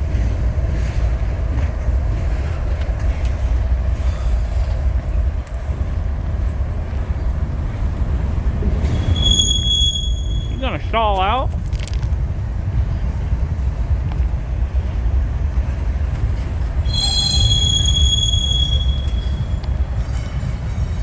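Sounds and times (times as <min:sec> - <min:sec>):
freight train rumbling by: 0:00.0 - 0:21.0
high steady squeal: 0:08.8 - 0:10.9, 0:16.8 - 0:20.9.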